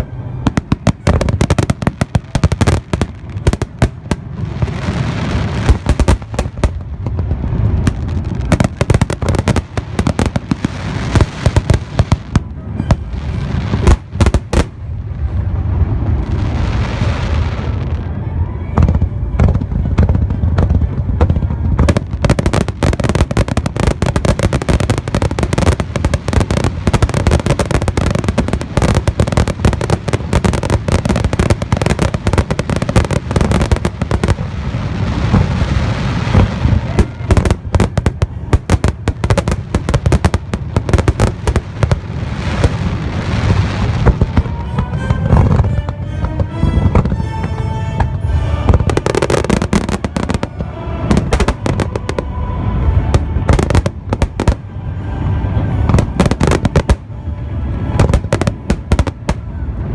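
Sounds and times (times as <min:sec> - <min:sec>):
fireworks booming: 0:00.0 - 0:59.9
fireworks crackling: 0:00.0 - 0:59.9.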